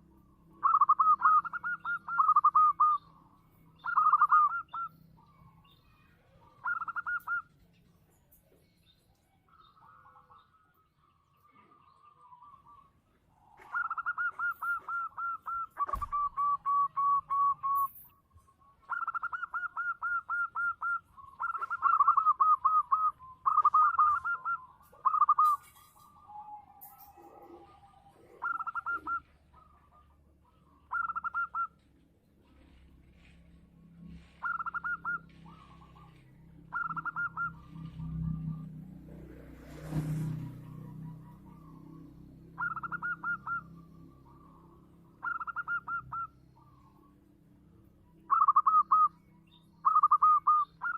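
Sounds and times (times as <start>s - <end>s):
dove cooing: 0.0s - 3.2s, 3.8s - 5.4s, 6.4s - 7.5s, 13.5s - 18.0s, 18.9s - 31.8s, 34.2s - 38.7s, 40.6s - 47.0s, 48.3s - 49.1s, 49.8s - 50.9s.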